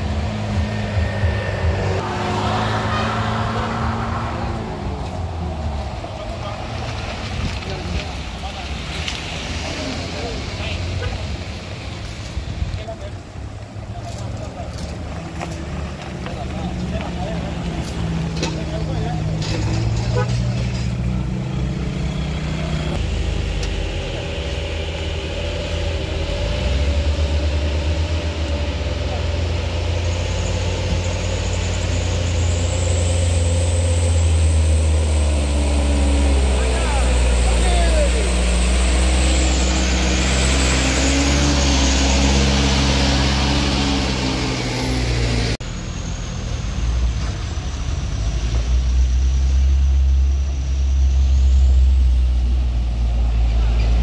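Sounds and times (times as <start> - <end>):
low engine sound: 0.0 - 8.8
heavy vehicle engine rumbling: 0.0 - 54.0.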